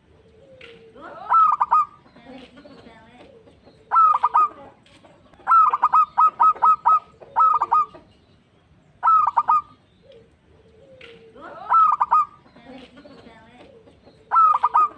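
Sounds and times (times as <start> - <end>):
dove cooing: 0.0 - 8.2, 9.0 - 14.9.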